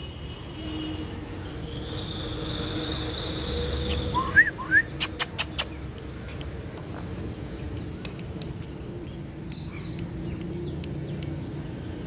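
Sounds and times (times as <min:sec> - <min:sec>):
faint bird chirps and clicks: 0:04.9 - 0:11.9.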